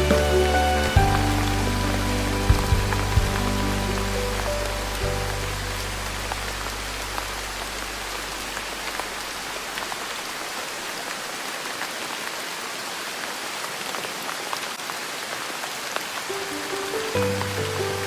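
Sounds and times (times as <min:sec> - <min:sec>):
soft low music tones: 0:00.0 - 0:09.2
rain falling on a surface: 0:00.0 - 0:18.0.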